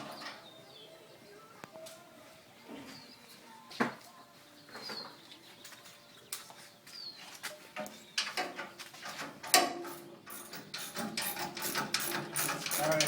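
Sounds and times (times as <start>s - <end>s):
bird chirping: 0.0s - 1.6s, 4.0s - 9.4s.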